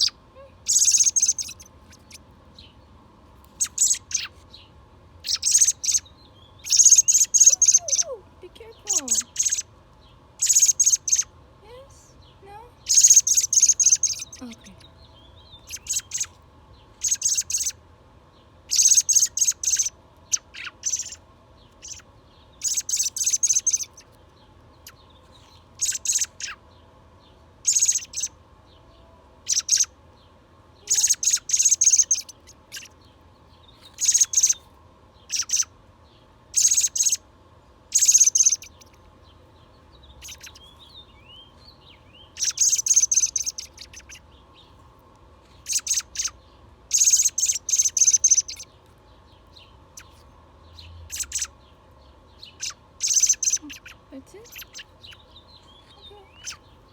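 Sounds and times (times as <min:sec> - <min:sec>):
young bird begging calls: 0:00.0 - 0:02.2, 0:03.6 - 0:04.4, 0:05.2 - 0:09.7, 0:10.4 - 0:14.9, 0:15.6 - 0:16.4, 0:17.0 - 0:17.8, 0:18.7 - 0:21.2, 0:21.8 - 0:22.0, 0:22.6 - 0:24.0, 0:25.8 - 0:26.6, 0:27.6 - 0:28.3, 0:29.5 - 0:29.9, 0:30.8 - 0:33.0, 0:34.0 - 0:34.6, 0:35.3 - 0:35.7, 0:36.6 - 0:37.2, 0:37.9 - 0:38.9, 0:40.2 - 0:41.4, 0:42.2 - 0:44.3, 0:45.6 - 0:48.7, 0:51.1 - 0:51.5, 0:52.4 - 0:56.8.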